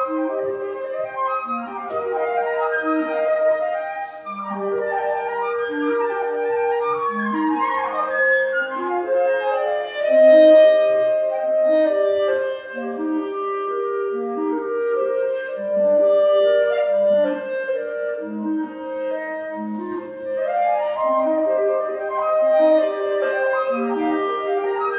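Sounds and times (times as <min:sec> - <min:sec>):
flute melody: 0:00.0 - 0:24.9.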